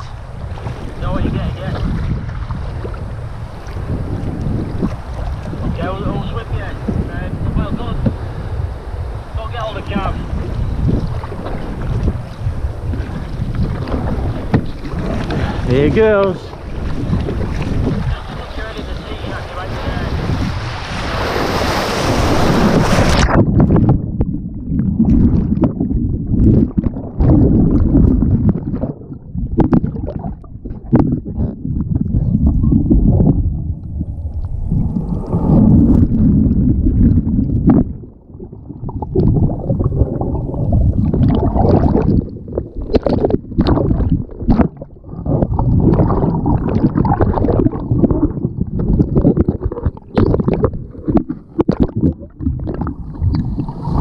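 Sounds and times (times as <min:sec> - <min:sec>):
seawater sloshing and gurgling: 0:00.0 - 0:54.0
splashes and knocks: 0:40.7 - 0:54.0.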